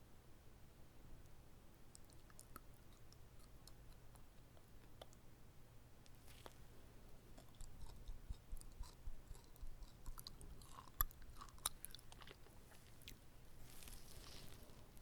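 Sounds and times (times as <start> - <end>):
close-miked chewing: 1.9 - 5.2, 6.1 - 15.0
wet mouth clicks: 1.9 - 5.2, 7.4 - 12.5
soft crunches: 6.1 - 6.7, 11.4 - 15.0.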